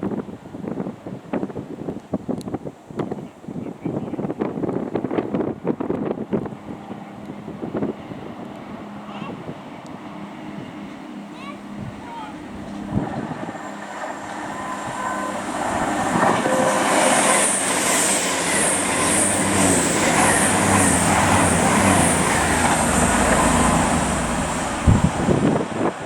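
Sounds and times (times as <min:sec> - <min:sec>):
train rumble and rail noise: 0:00.0 - 0:26.0
pulsing high hiss: 0:13.6 - 0:25.4.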